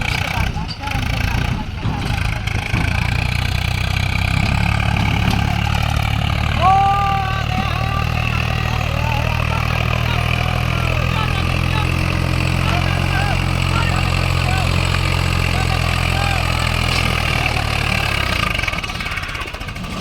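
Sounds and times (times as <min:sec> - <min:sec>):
tractor diesel engine straining: 0:00.0 - 0:20.0
person shouting: 0:06.5 - 0:12.0.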